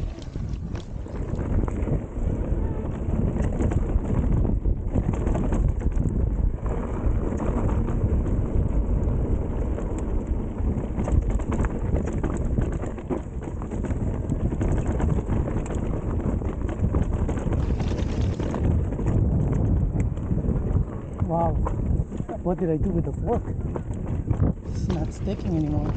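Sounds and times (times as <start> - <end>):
bike tyre rumble: 0.0 - 25.9
rocks tapping bike frame: 0.0 - 25.9
wind noise on microphone: 0.0 - 25.9.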